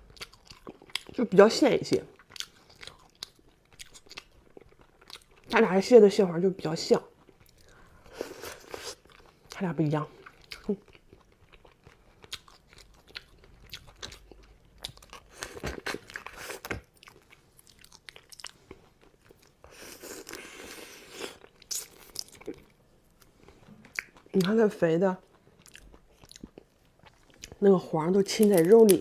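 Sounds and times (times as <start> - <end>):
chewing: 0.0 - 1.2, 2.0 - 5.5, 7.0 - 24.6, 25.2 - 29.0
crab shell crunching: 25.6 - 29.0.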